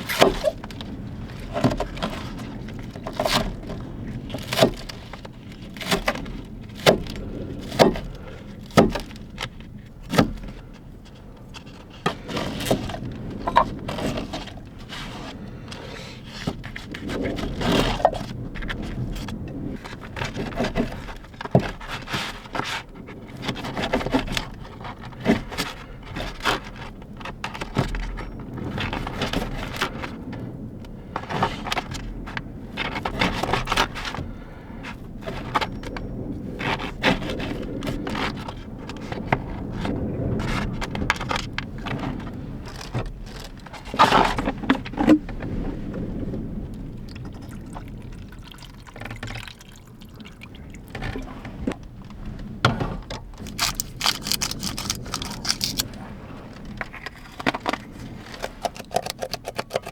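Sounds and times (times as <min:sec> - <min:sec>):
objects scraping and knocking: 0:11.6 - 0:19.3, 0:50.9 - 0:59.9.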